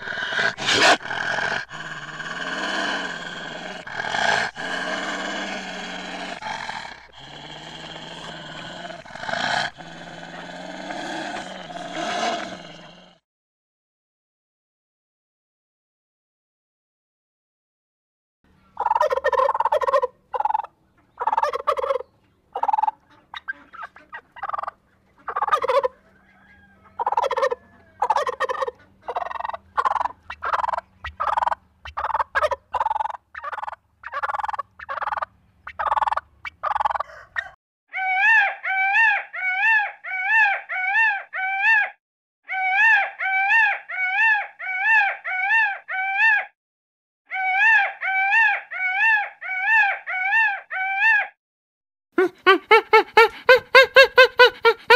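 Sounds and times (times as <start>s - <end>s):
peacock calling: 18.6s - 41.9s
turkeys gobbling: 18.8s - 41.8s, 52.2s - 54.9s.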